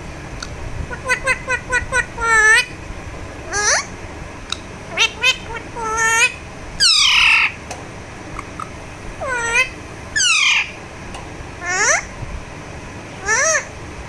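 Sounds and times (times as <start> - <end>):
parakeet squawking: 0.8 - 2.8, 3.4 - 4.0, 4.9 - 7.6, 8.3 - 10.8, 11.6 - 12.2, 13.2 - 13.7.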